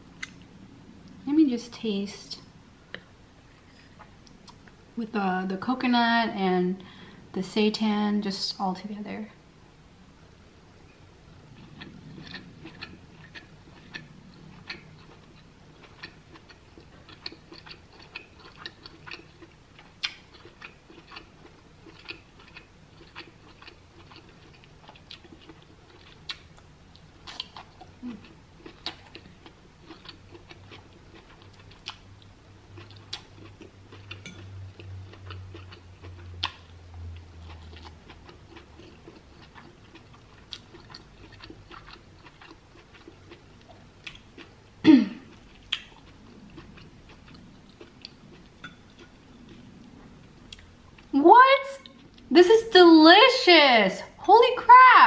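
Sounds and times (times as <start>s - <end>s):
faint low hum: 0.0s - 55.0s
chewing wet clicks and smacks: 0.2s - 0.5s, 11.6s - 44.5s, 45.3s - 51.1s.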